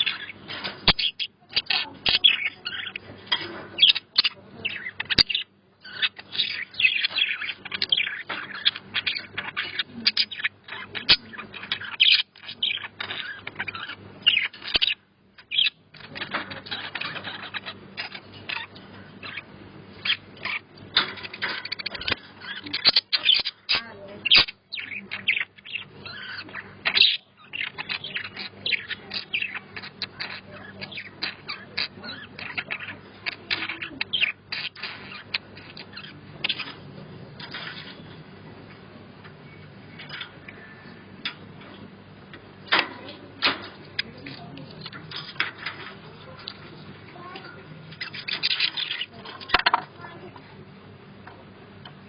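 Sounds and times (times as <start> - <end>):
budgies chattering: 0.0 - 52.0.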